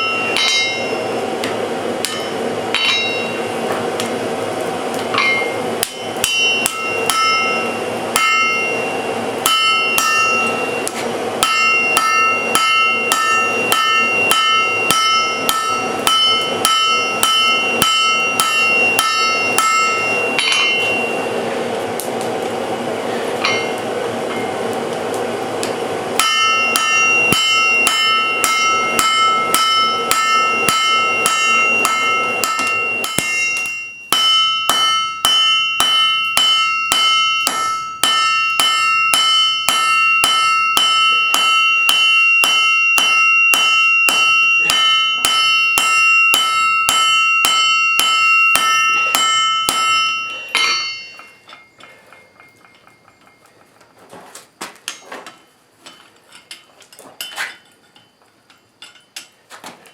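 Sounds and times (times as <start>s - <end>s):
anvil ringing: 0.0s - 3.8s, 5.1s - 21.5s, 23.4s - 24.6s, 26.2s - 53.8s
hammer striking steel on anvil: 0.0s - 4.2s, 4.9s - 21.4s, 23.3s - 24.6s, 25.6s - 53.9s, 54.9s - 59.4s
faint metallic clinks: 44.6s - 54.0s, 54.9s - 59.9s.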